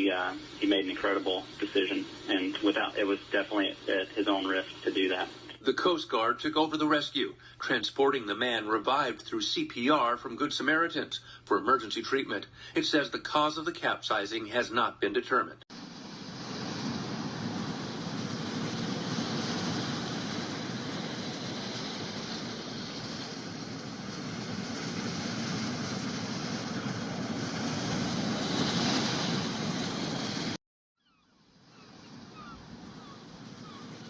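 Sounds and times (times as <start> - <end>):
sea water rushing: 0.0 - 5.5, 15.8 - 30.6
wind rushing: 15.8 - 30.6.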